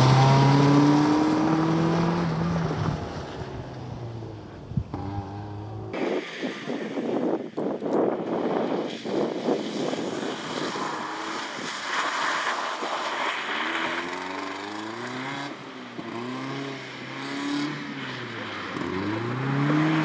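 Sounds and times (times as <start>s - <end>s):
car engine revving: 0.0s - 6.9s, 13.4s - 20.0s.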